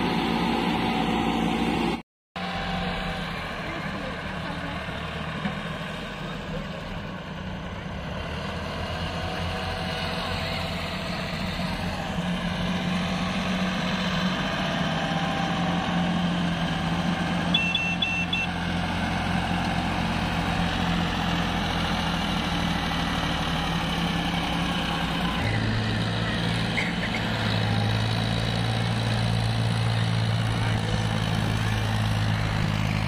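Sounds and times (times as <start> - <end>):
short high beeps: 17.5 - 18.5.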